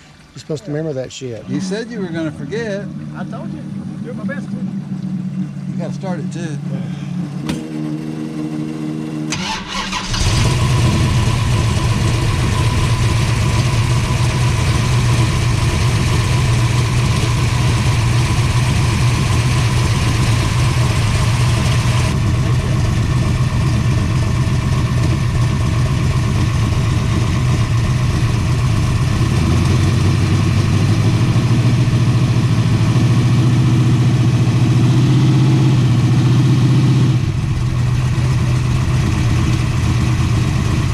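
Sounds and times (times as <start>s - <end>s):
loud engine idling: 1.6s - 7.7s, 9.3s - 40.9s
starter cranking: 9.3s - 11.1s.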